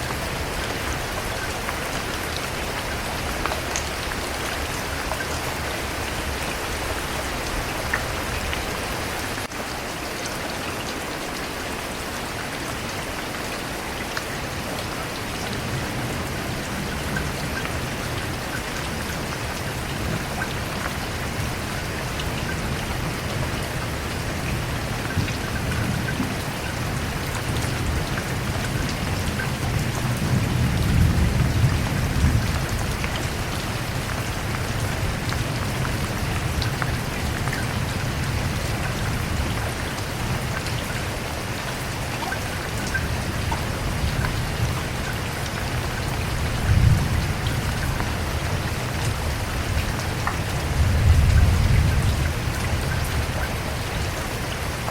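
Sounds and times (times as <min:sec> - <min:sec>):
rain falling on surface: 0:00.0 - 0:54.9
thunder rumbles: 0:22.5 - 0:39.7, 0:45.8 - 0:53.8.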